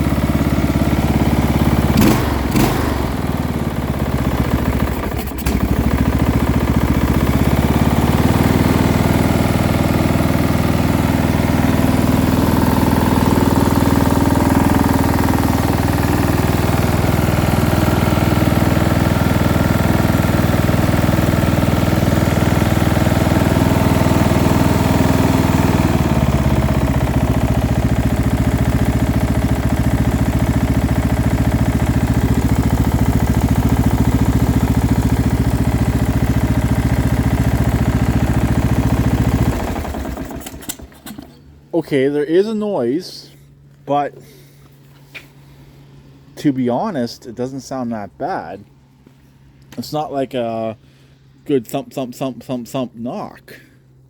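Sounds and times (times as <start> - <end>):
low engine rattle: 0.0 - 41.7
small mower engine running: 0.0 - 41.9.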